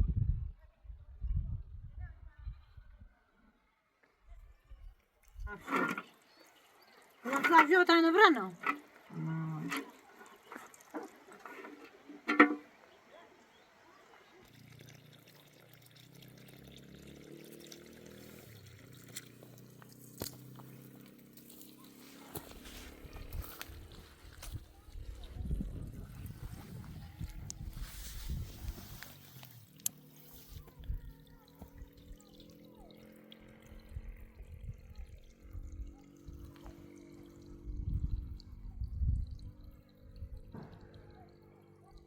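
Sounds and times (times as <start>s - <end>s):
water running and pouring: 5.2s - 42.0s
low rumbles: 30.6s - 41.3s.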